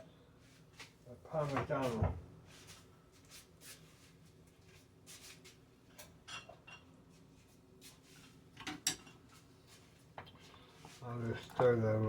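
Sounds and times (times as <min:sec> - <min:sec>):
utensils clinking against pot: 0:08.6 - 0:09.2.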